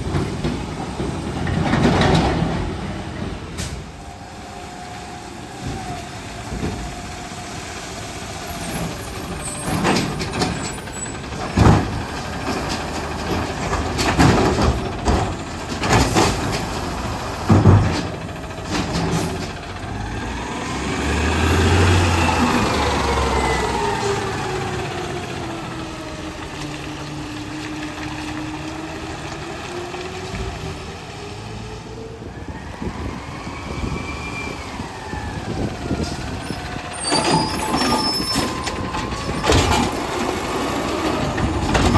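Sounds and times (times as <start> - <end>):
trash banging and clattering: 0.0 - 4.1, 5.5 - 7.3, 8.5 - 20.0, 35.6 - 41.9
truck engine revving: 0.0 - 41.9.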